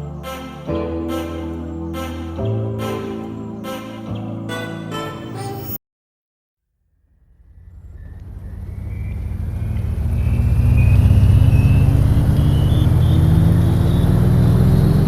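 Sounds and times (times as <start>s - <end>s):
low engine-like drone: 7.0s - 15.0s.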